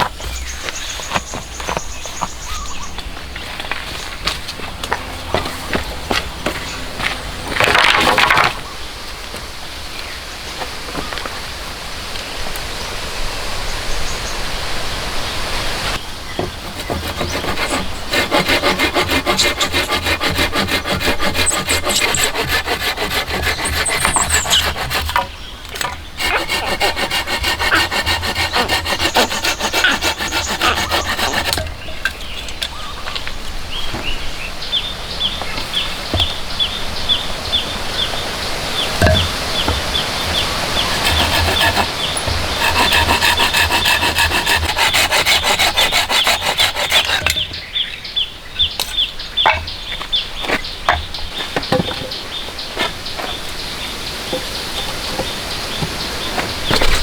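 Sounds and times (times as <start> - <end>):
hand saw rasping through wood: 16.4 - 31.9, 39.0 - 47.5.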